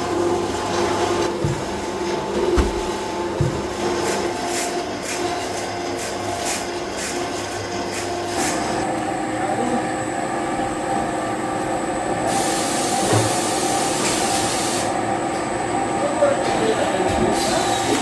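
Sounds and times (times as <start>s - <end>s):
factory machinery humming: 0.0s - 18.0s
hiss: 12.3s - 14.9s.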